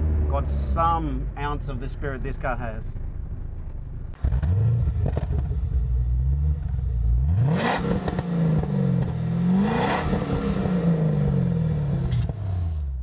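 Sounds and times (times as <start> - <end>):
car engine revving: 4.1 - 13.0.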